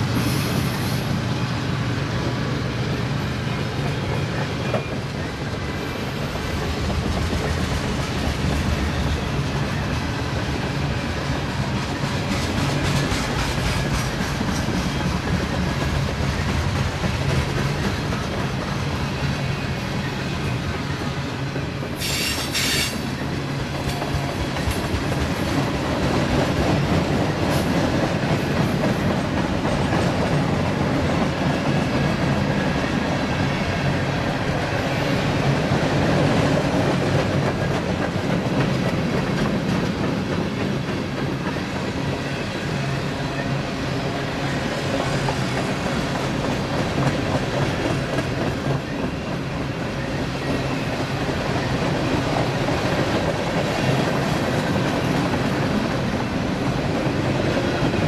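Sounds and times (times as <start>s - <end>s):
train wheels screeching: 0.0s - 1.3s, 3.0s - 25.7s
freight train rolling past: 0.0s - 58.0s.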